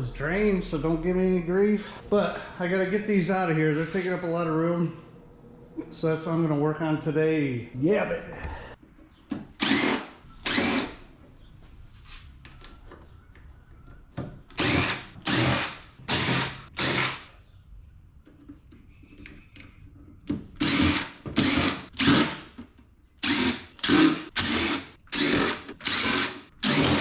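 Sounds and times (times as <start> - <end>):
power drill removing screws: 9.6 - 11.0, 14.5 - 17.3, 20.6 - 22.6, 23.2 - 27.0.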